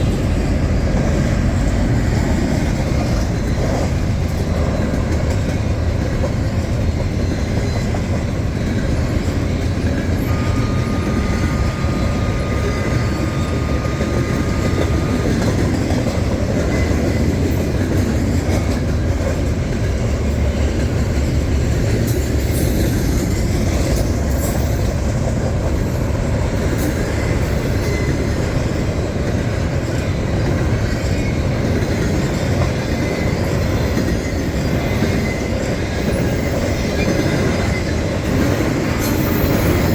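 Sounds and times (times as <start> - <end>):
train rumbling past: 0.0 - 39.9
high wheel squeal: 7.2 - 17.8, 25.7 - 29.0, 30.6 - 39.9.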